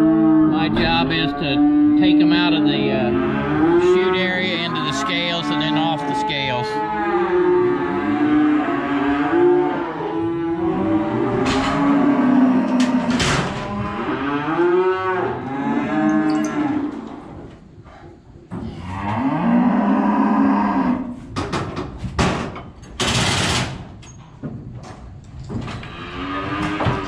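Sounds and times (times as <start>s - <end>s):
cattle mooing: 0.0s - 17.2s, 18.6s - 21.2s, 25.8s - 27.0s.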